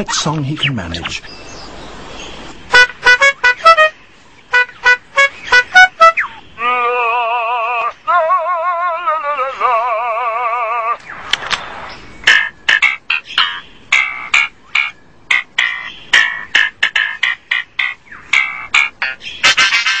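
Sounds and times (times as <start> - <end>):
bird calls: 0.0 - 20.0
warbling siren-like bird call: 4.5 - 11.3, 12.2 - 20.0.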